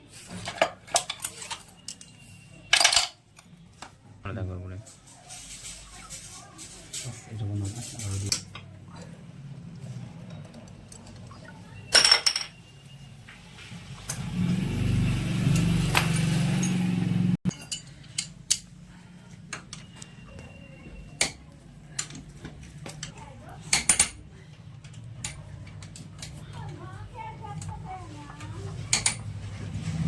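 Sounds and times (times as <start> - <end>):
metal tools clinking: 0.4 - 3.2, 11.9 - 12.6, 17.5 - 18.7.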